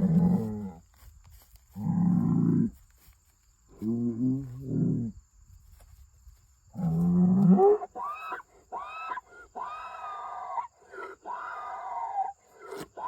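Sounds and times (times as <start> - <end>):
bull bellowing squeakily: 7.5 - 13.0.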